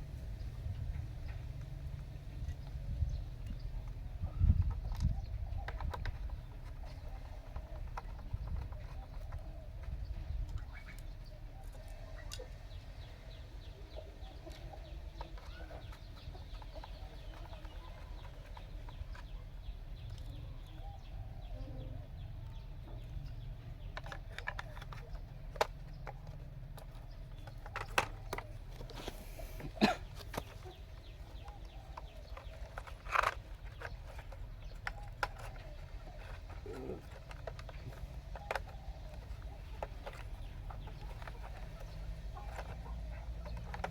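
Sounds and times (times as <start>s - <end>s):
chickens clucking: 0.6s - 43.9s.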